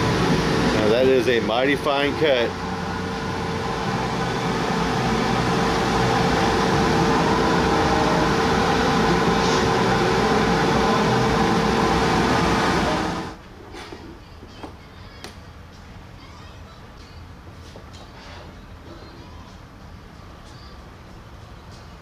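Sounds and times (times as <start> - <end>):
air pump humming: 0.0 - 13.4
exhaust blower rushing: 0.0 - 13.4.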